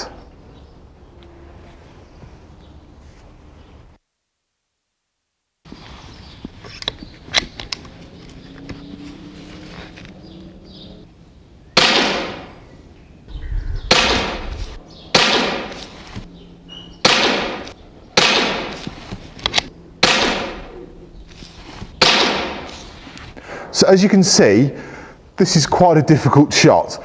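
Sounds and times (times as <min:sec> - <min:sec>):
air rifle shots: 0:11.8 - 0:12.6, 0:13.8 - 0:16.3, 0:17.0 - 0:20.9, 0:21.6 - 0:23.8.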